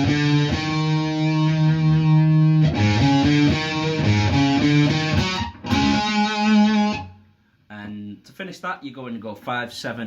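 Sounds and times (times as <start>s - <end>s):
distorted electric guitar riff: 0.0s - 7.2s.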